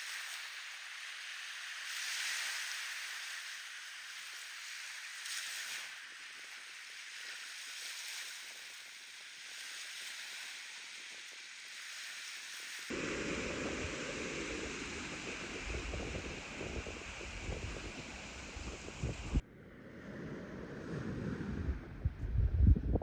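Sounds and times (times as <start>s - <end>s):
small waves washing on sand: 0.0s - 19.4s
wind buffeting microphone: 12.9s - 23.0s.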